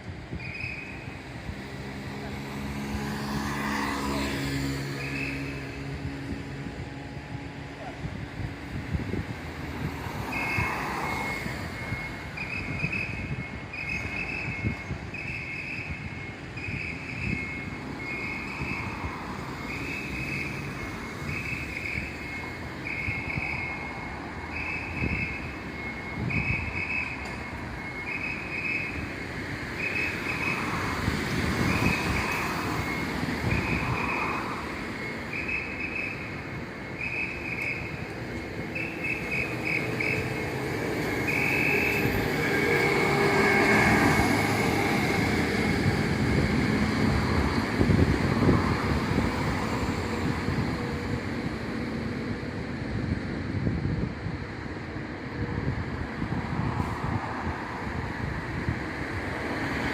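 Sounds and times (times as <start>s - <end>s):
electronic warning beeper: 10.0s - 47.6s.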